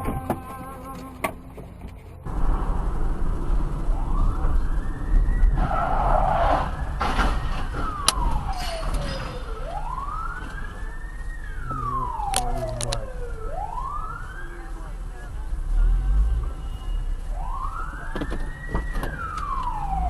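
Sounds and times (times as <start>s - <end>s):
engine and road noise: 0.0s - 20.0s
emergency vehicle siren wailing: 2.3s - 15.1s, 17.2s - 20.0s.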